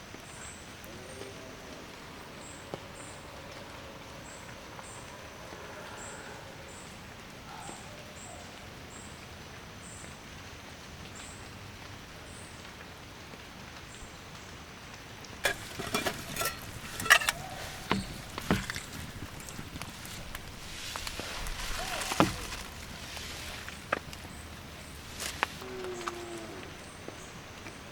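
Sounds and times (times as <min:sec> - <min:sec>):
rain hissing: 0:00.0 - 0:27.9
sharp knocks and clatters: 0:15.4 - 0:20.1.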